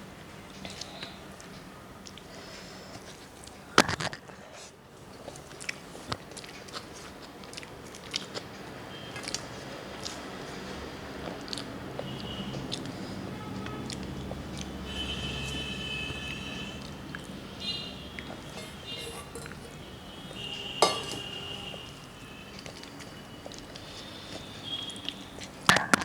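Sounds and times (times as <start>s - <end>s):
person chewing food: 5.2s - 9.4s.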